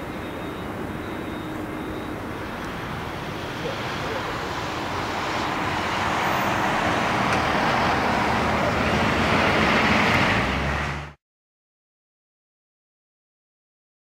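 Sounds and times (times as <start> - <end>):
jet engines roaring: 0.0 - 11.2.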